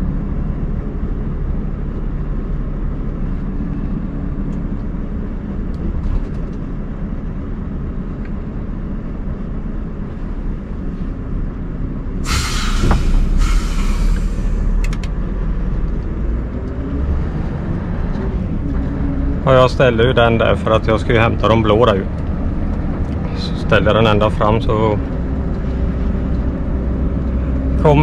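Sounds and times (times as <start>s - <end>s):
diesel truck engine idling: 6.7s - 16.6s
compressed air hiss: 12.2s - 14.8s.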